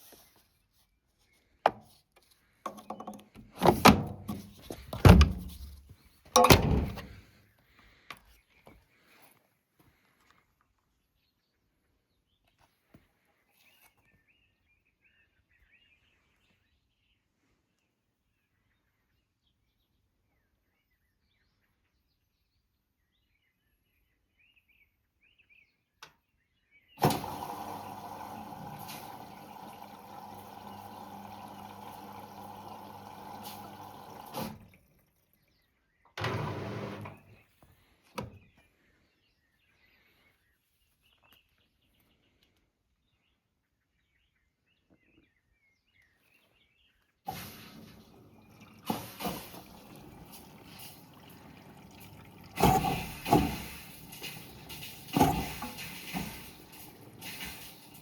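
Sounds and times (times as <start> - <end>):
washing machine click: 3.6 - 5.7, 6.4 - 7.2
washing machine humming rush: 27.0 - 35.2, 36.2 - 37.3, 47.3 - 58.0.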